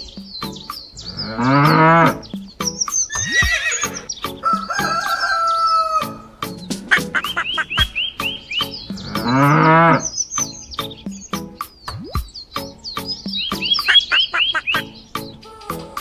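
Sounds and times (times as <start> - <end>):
bird chirps: 0.0 - 15.5
regular clicking beat: 0.0 - 16.0
animal calls: 0.2 - 11.0, 12.4 - 15.3
cow mooing: 1.0 - 2.3, 9.0 - 10.1.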